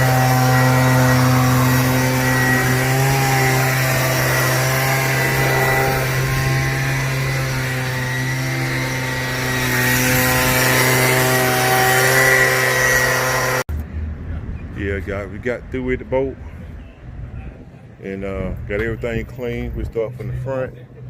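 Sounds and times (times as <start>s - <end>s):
power tool motor humming: 0.0s - 13.7s.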